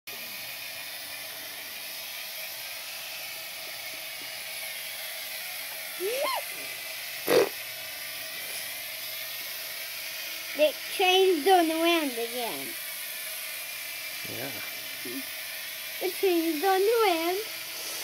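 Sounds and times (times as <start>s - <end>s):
model train motor whir: 0.1s - 18.0s.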